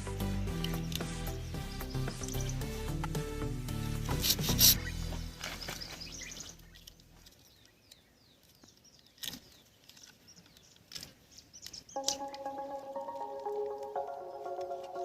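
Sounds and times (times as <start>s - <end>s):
background music: 0.0s - 5.6s, 12.0s - 15.0s
small birds chirping: 0.0s - 15.0s.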